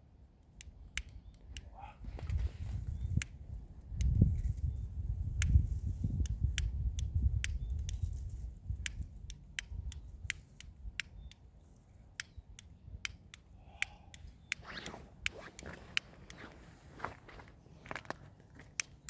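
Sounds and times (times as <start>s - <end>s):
wind rumble on microphone: 1.8s - 11.0s.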